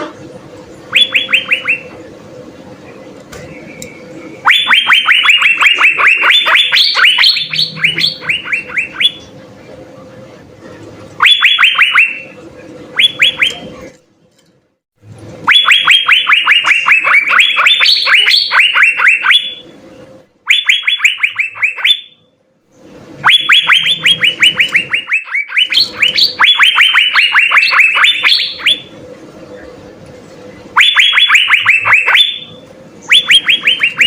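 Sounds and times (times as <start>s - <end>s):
bird singing whistled notes: 0.9s - 1.9s.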